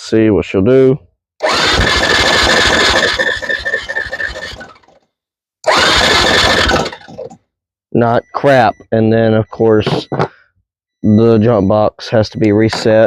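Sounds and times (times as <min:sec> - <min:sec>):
electric starter cranking engine: 0:01.4 - 0:05.0, 0:05.6 - 0:07.4.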